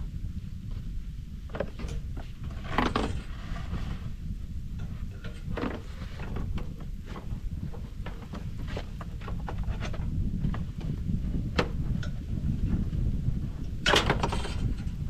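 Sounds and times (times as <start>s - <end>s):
steady low rumble: 0.0s - 15.0s
short knocks and scrapes: 1.5s - 4.2s, 4.8s - 12.2s, 13.8s - 15.0s.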